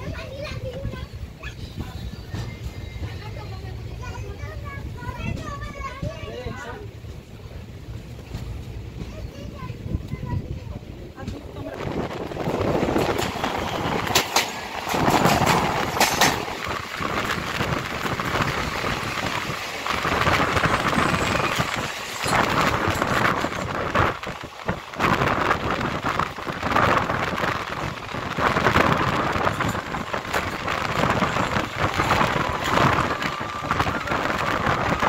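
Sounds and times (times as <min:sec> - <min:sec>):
passing train: 0:00.0 - 0:35.0
rushing wind: 0:00.0 - 0:35.0
wheels clattering on rails: 0:08.0 - 0:35.0.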